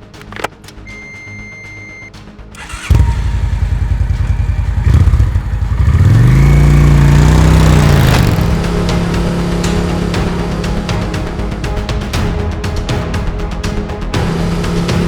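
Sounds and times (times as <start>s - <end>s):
motorcycle engine revving and idling: 2.6s - 12.5s, 14.0s - 15.0s.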